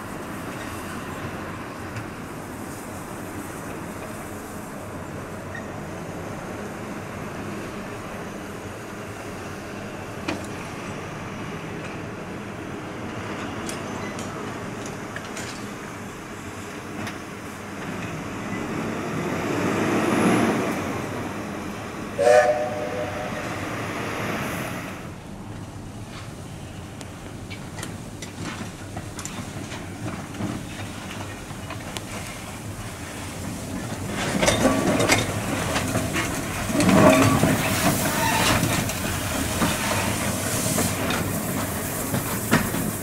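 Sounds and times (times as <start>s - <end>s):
train running: 0.0s - 43.0s
short whistle blast: 22.2s - 23.5s.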